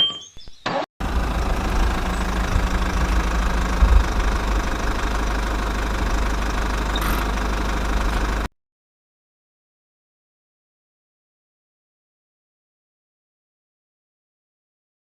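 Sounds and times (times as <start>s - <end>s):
diesel engine running: 0.8s - 8.5s.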